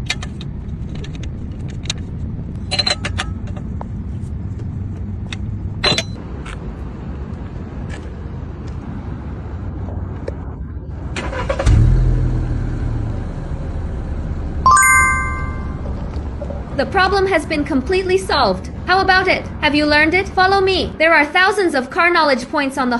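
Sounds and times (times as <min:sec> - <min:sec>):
short ringing tone: 0:14.7 - 0:16.0.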